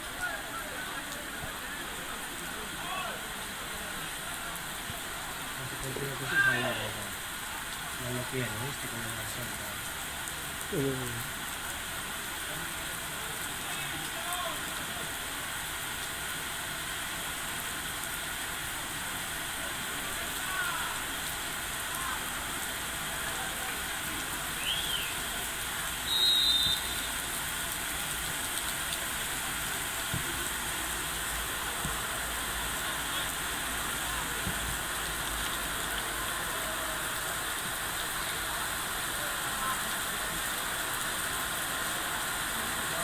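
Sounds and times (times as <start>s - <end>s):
steady rain falling: 0.0s - 43.0s
short high whistle blast: 26.1s - 27.1s.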